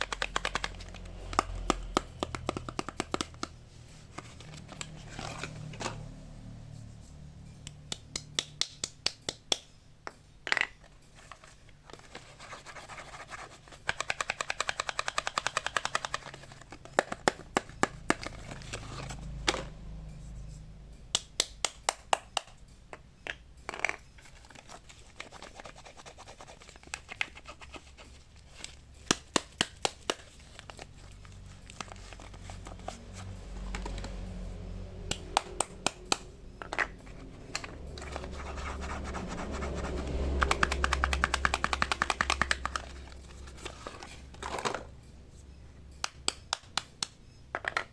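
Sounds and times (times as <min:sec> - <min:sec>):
sharp clicks and taps: 0:00.0 - 0:03.6, 0:35.0 - 0:38.4, 0:39.8 - 0:43.4, 0:45.9 - 0:47.2.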